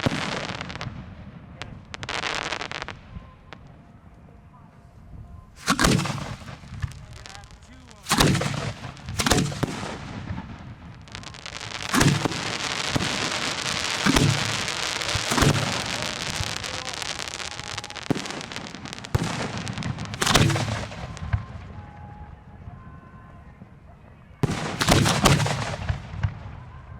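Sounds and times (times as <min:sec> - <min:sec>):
firework bangs: 0:00.0 - 0:03.7, 0:05.6 - 0:22.1, 0:24.4 - 0:26.8
hissing firework noise: 0:05.6 - 0:21.4.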